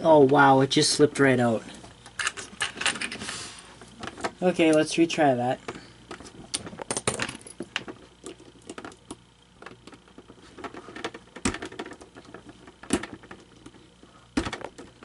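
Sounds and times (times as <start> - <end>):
plastic parts clicking and tapping: 6.1 - 13.8.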